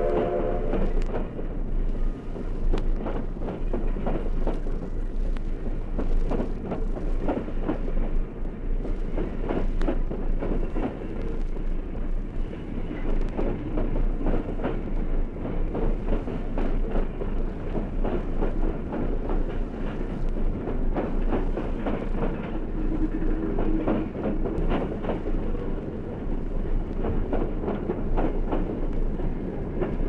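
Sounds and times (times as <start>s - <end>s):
steady train rumble: 0.0s - 30.0s
train wheels clattering: 0.0s - 30.0s.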